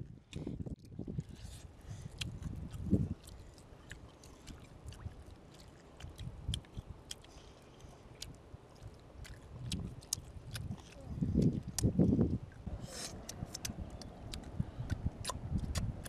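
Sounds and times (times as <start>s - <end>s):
children chewing and smacking lips: 0.0s - 16.0s.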